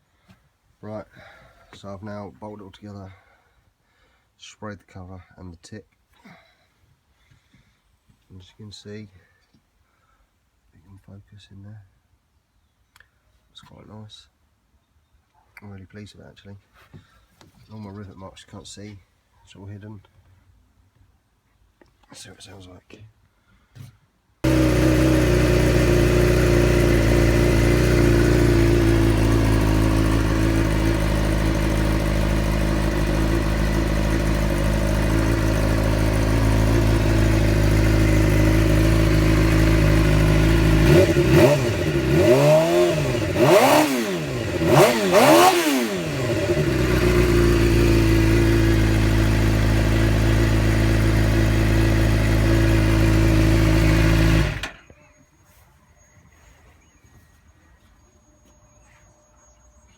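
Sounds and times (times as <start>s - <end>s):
motorcycle engine idling: 24.4s - 54.8s.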